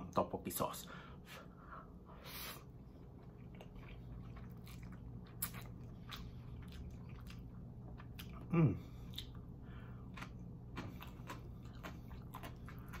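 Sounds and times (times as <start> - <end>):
chewing noodles: 2.7 - 13.0.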